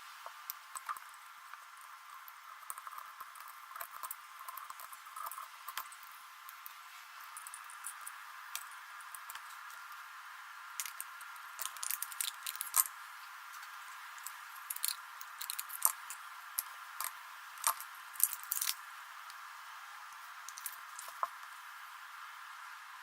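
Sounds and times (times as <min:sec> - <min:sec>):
faint steady hiss: 0:00.0 - 0:23.0
small tools clicking and snipping: 0:14.2 - 0:16.2, 0:17.0 - 0:18.8.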